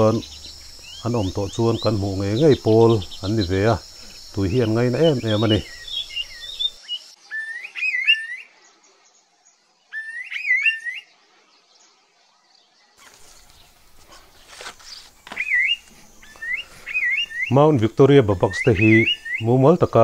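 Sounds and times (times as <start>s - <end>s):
bird singing whistled phrase: 4.5s - 8.5s, 9.9s - 11.1s, 15.3s - 17.6s, 18.2s - 19.6s.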